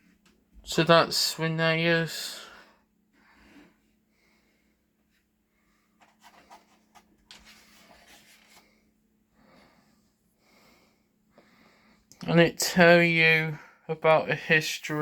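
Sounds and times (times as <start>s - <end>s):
paper pages rustling: 6.0s - 8.8s.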